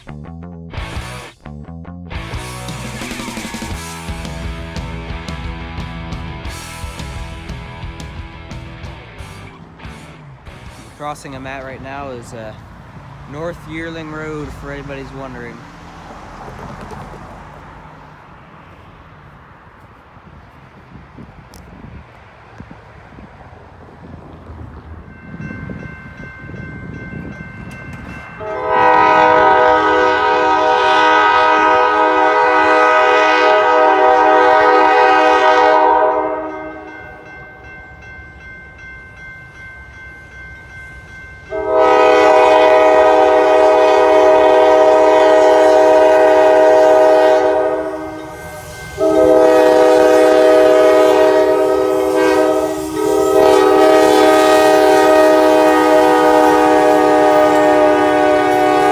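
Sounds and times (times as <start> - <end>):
locomotive air horn blasts: 28.4 - 37.0, 41.5 - 58.9.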